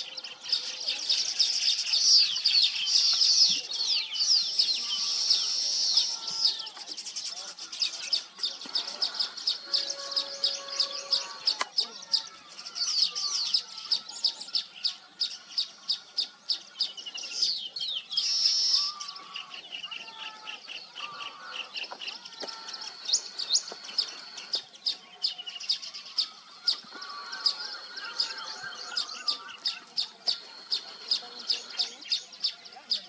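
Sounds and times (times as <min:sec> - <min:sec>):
weaver birds chattering: 0:00.0 - 0:33.0
buzzy bird call: 0:08.6 - 0:11.8, 0:21.1 - 0:24.9, 0:26.3 - 0:32.3.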